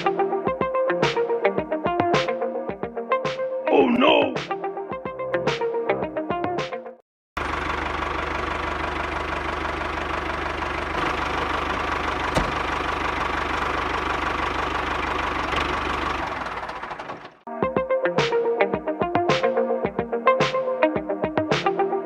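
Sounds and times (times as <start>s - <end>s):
diesel tractor engine idling: 7.4s - 17.4s.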